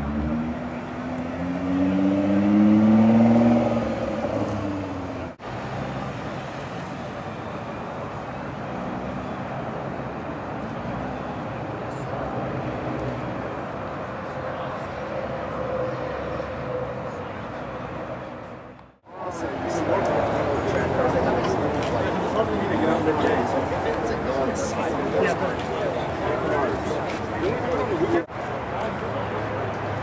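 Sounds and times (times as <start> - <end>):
car engine revving: 0.0 - 5.4.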